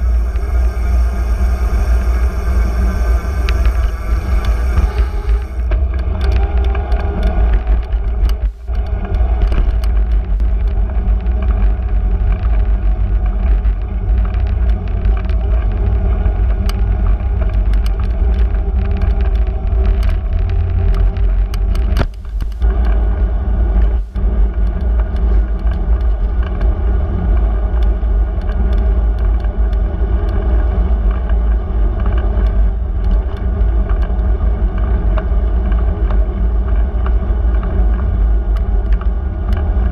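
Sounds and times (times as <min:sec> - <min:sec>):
road and wind noise: 0:00.0 - 0:39.9
small rattles and clicks: 0:00.0 - 0:39.9.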